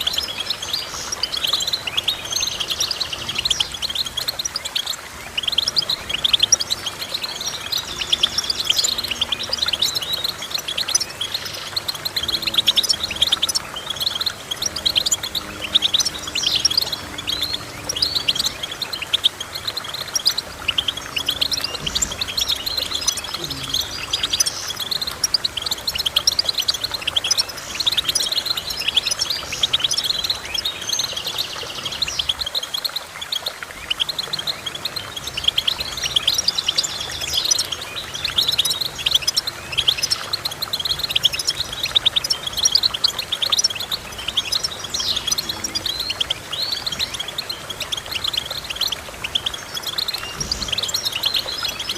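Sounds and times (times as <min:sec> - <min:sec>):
finch twittering: 0:00.0 - 0:51.9.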